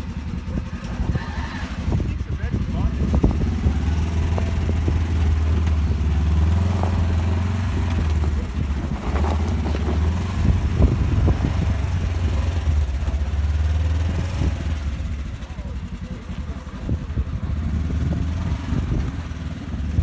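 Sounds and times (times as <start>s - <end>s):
vehicle engine running: 0.0s - 20.0s
knocks and rattles: 2.5s - 15.7s.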